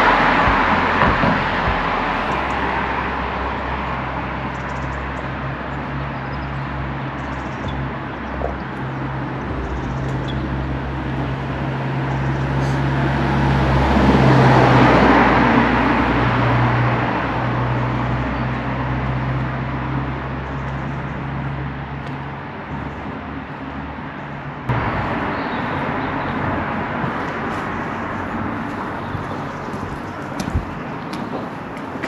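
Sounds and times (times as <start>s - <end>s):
steady low hum: 0.0s - 14.1s
car passing: 0.0s - 32.0s.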